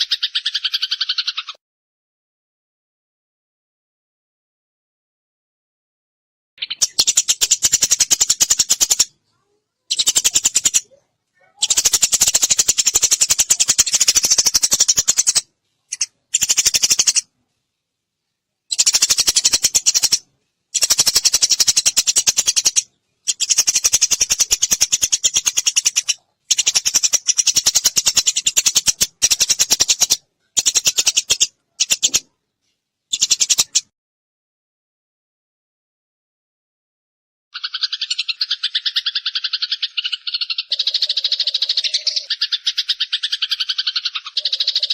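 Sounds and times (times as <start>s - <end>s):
sparrows chirping: 0.0s - 1.6s, 6.6s - 17.3s, 18.6s - 32.4s, 33.1s - 33.9s, 37.6s - 44.9s.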